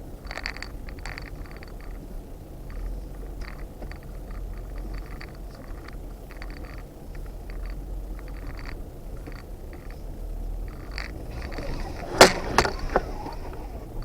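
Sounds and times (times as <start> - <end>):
crackles scrapes and rattles: 0.0 - 14.0
off-road vehicle engine rumble: 0.0 - 14.0.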